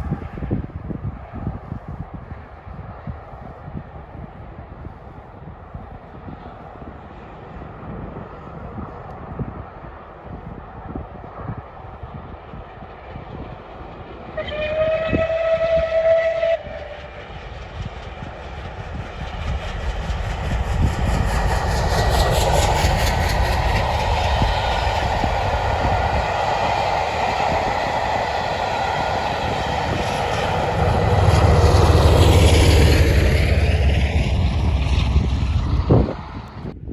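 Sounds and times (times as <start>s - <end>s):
steam train passing: 0.0s - 36.8s
steam locomotive whistle: 14.4s - 17.3s.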